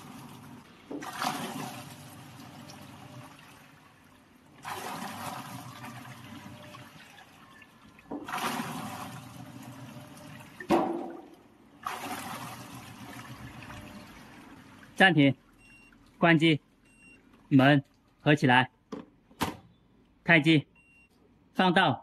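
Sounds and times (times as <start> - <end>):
washing machine churning water: 0.0 - 18.2
water sloshing: 0.0 - 18.2.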